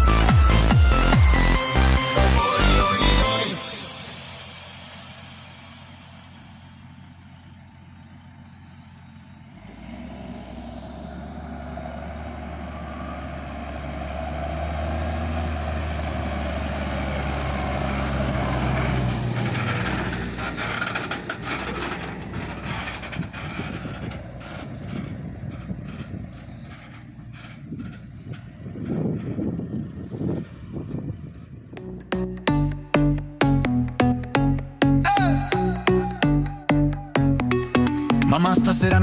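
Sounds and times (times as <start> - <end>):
diesel engine drone: 0.0 - 39.0
clatter of knocks and rattles: 19.3 - 31.7.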